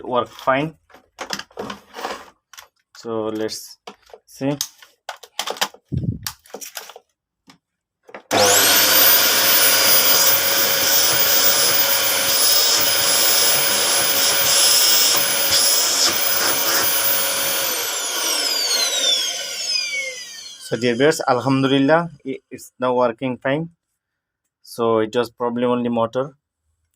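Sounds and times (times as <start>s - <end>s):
vacuum cleaner motor whining: 8.3s - 22.0s.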